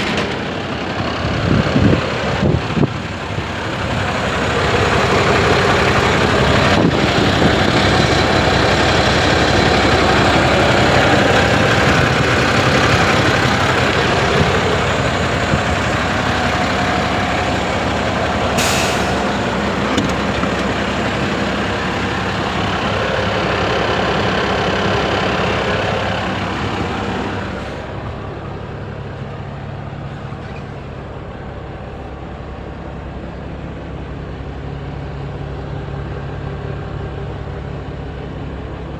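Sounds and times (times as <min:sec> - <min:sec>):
truck diesel engine running: 0:00.0 - 0:38.9
sharp air hiss: 0:18.5 - 0:19.4.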